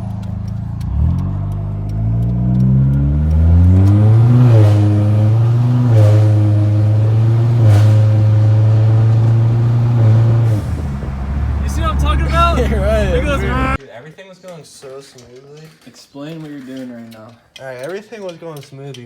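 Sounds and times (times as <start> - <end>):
car engine revving: 0.0 - 13.8.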